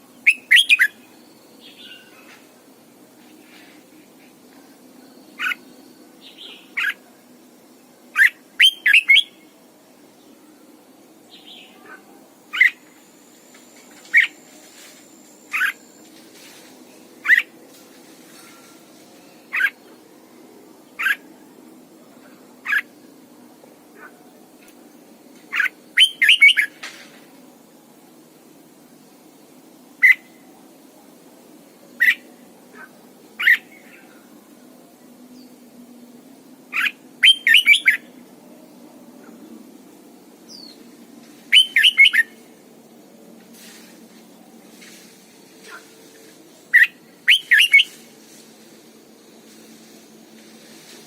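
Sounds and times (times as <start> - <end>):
bulbul short sharp calls: 46.8 - 48.0.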